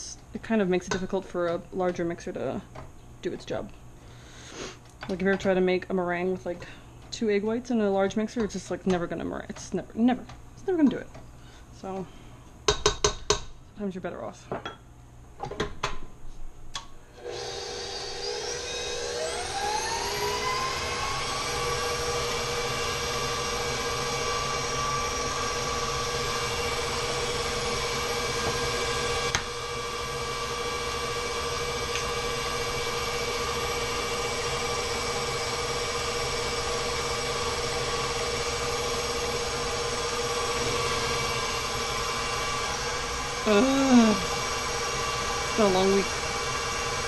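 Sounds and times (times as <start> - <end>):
stand mixer motor whining: 17.2 - 47.0.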